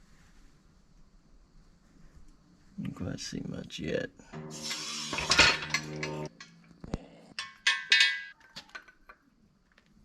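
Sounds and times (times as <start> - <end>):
metal on metal clinks: 4.4 - 6.7, 7.3 - 9.2.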